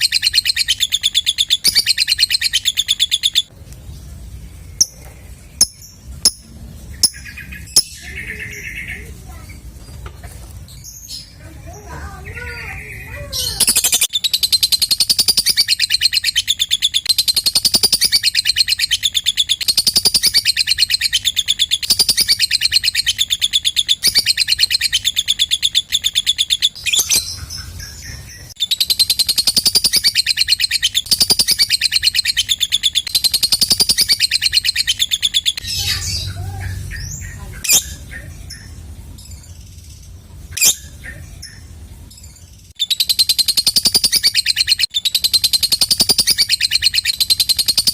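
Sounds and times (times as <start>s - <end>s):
lovebird chattering trill: 0.0s - 3.5s, 4.7s - 9.7s, 10.9s - 47.9s
sharp bird chirps: 0.0s - 9.7s, 12.4s - 47.9s.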